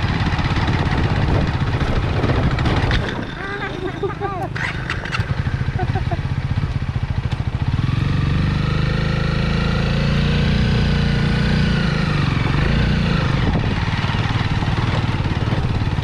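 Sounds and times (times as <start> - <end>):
motorbike engine running: 0.0 - 16.0.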